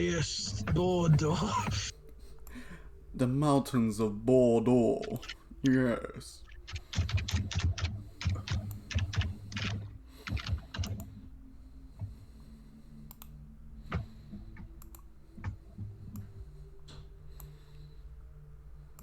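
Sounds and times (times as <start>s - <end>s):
low steady hum: 0.0s - 19.0s
typing on keyboard: 6.5s - 11.2s.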